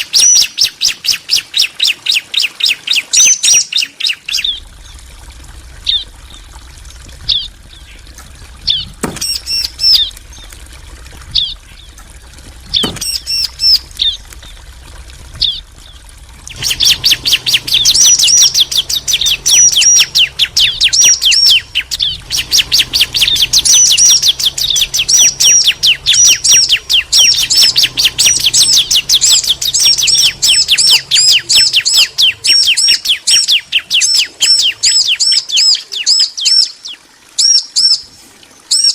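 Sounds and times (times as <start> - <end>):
birds calling high chirps: 0.0 - 38.9
fast run of high bird notes: 15.3 - 33.0.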